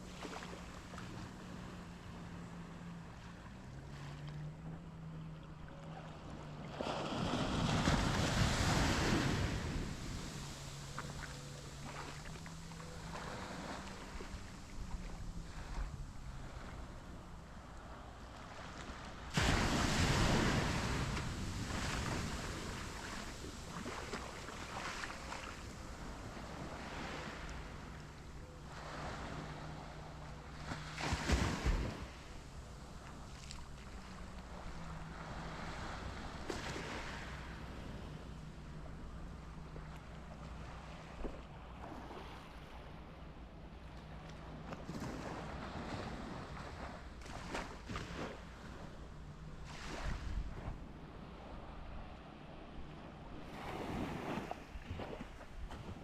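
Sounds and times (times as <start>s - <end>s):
boat engine hum: 0.0s - 56.0s
waves washing on sandy shore: 5.8s - 56.0s
wave breaking on sand: 6.8s - 10.4s, 19.3s - 27.8s, 30.6s - 32.2s.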